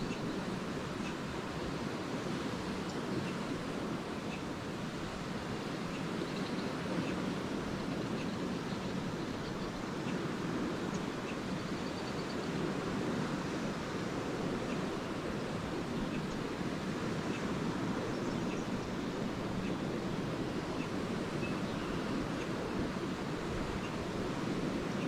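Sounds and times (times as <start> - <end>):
lake waves washing onto shore: 0.0 - 25.0
swallows chirping: 10.8 - 12.6.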